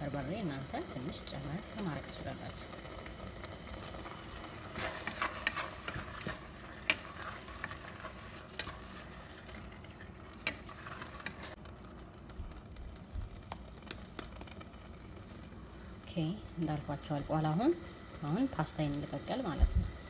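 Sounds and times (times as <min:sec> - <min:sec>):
meat sizzling: 0:00.0 - 0:20.0
spoon scraping a pan: 0:04.0 - 0:11.6.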